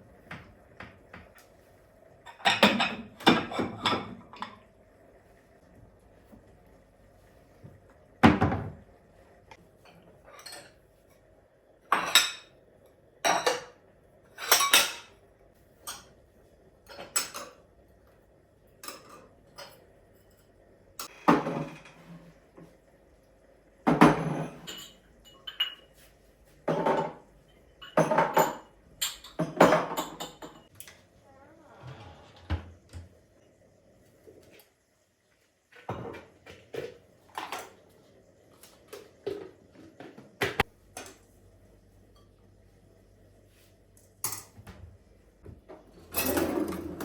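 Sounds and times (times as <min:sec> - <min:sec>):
dishes and cutlery clinking: 0:09.8 - 0:10.8, 0:13.3 - 0:15.2, 0:18.8 - 0:22.1, 0:23.9 - 0:30.7, 0:44.2 - 0:44.7.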